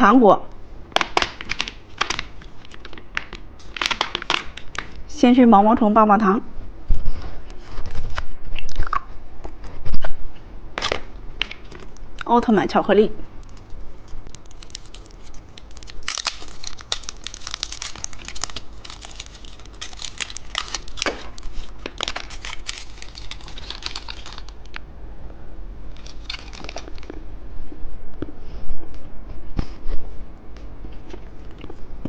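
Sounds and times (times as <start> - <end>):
plastic wrapper crinkling: 0.9 - 5.0, 13.4 - 24.8, 25.9 - 27.2.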